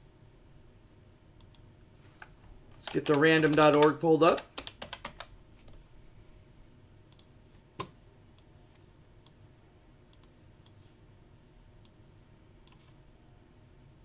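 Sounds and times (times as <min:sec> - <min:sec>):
computer clicks: 0:02.2 - 0:05.3.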